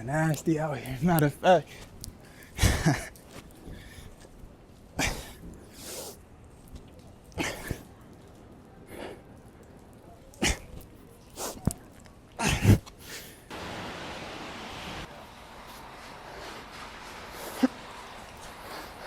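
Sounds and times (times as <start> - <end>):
steady hiss: 13.5 - 19.0.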